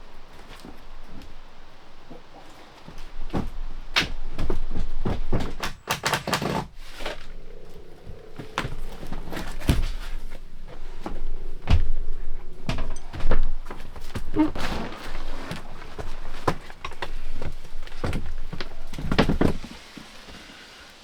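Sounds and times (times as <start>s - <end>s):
knocks and thuds on wood: 2.9s - 6.8s, 8.4s - 19.8s.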